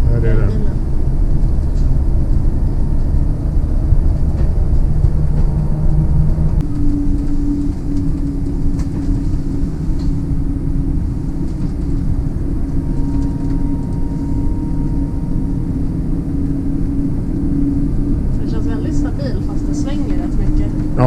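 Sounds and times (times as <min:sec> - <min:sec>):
bus road rumble: 0:00.0 - 0:21.0
steady electric hum: 0:00.0 - 0:21.0.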